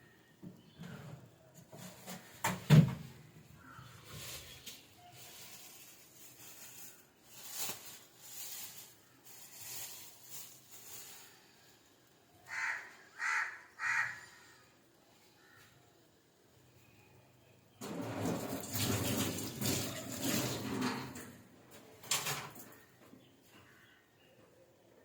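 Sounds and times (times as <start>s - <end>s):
faint rustling: 3.6s - 11.8s
harsh animal calls: 12.4s - 14.7s.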